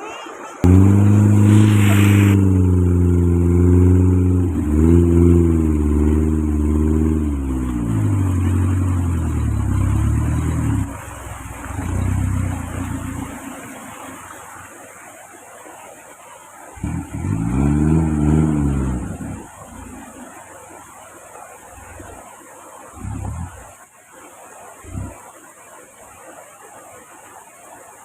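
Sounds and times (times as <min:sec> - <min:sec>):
vehicle engine running: 0:00.6 - 0:14.7, 0:16.8 - 0:21.1, 0:23.0 - 0:23.7, 0:24.9 - 0:25.2.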